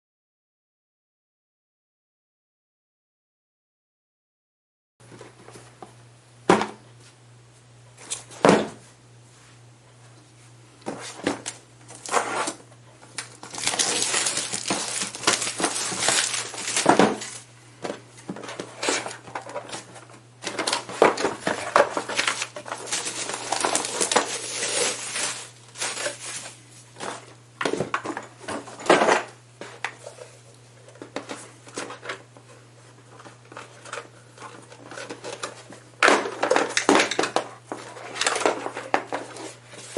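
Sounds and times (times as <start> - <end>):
packaging crinkling and tearing: 11.9 - 12.6, 13.2 - 17.5, 21.5 - 26.6.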